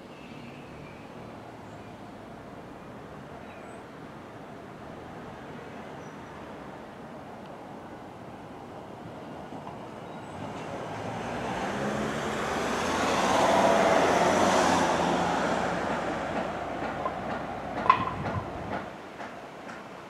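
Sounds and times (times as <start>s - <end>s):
freight train wheels on rails: 8.6s - 20.0s.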